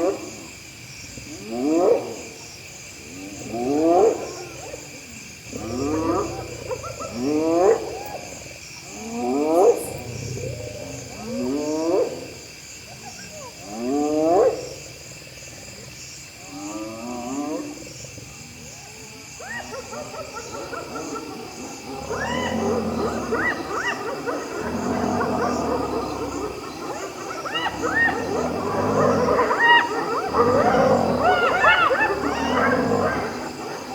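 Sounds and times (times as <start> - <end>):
insects trilling: 0.0 - 33.9
many hyenas calling: 3.2 - 12.3, 19.0 - 33.9
hyenas whooping: 19.4 - 33.9.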